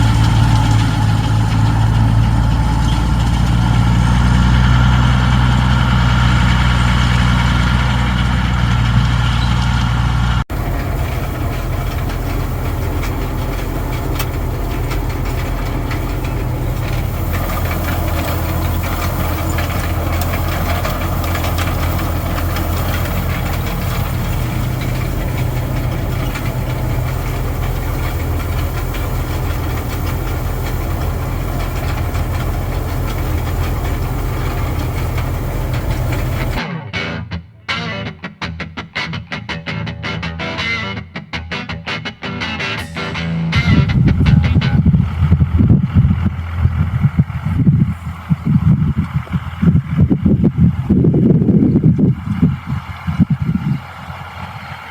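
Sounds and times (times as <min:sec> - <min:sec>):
tractor diesel engine running: 0:00.0 - 0:36.6, 0:42.8 - 0:54.9
low rough engine sound: 0:00.0 - 0:36.7, 0:42.8 - 0:54.9
faint rattling clicks: 0:10.6 - 0:36.6.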